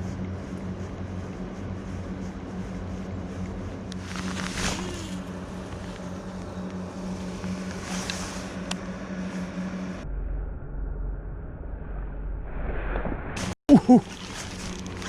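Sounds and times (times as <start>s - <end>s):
small motor humming: 0.0s - 10.0s.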